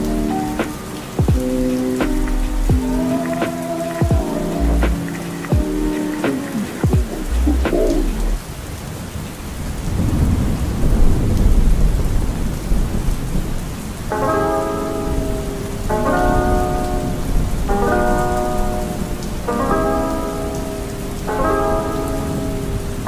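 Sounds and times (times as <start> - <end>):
soft music with sustained chords: 0.0 - 8.4, 14.1 - 23.0
heavy rain: 0.0 - 23.0
thunder rumble: 9.5 - 14.4.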